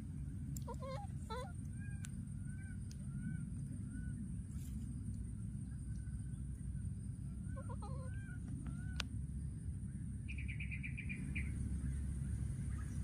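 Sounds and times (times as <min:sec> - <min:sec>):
small birds chirping: 0:00.0 - 0:13.0
steady low rumble: 0:00.0 - 0:13.0
bird trill: 0:10.2 - 0:13.0.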